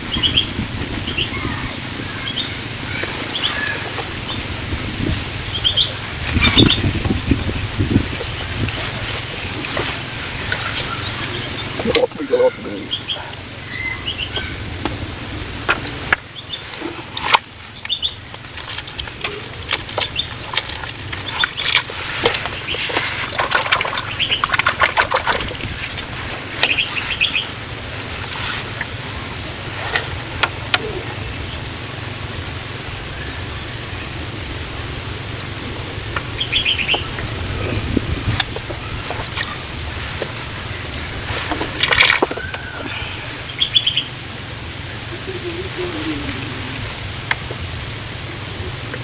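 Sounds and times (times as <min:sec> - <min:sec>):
bird chirping: 0:00.0 - 0:04.5, 0:05.5 - 0:07.0, 0:10.4 - 0:15.5, 0:17.8 - 0:18.3, 0:22.5 - 0:24.7, 0:26.6 - 0:28.6, 0:36.0 - 0:39.9, 0:42.3 - 0:44.2
birds chirping: 0:00.0 - 0:49.0
steady low rumble: 0:00.0 - 0:49.0.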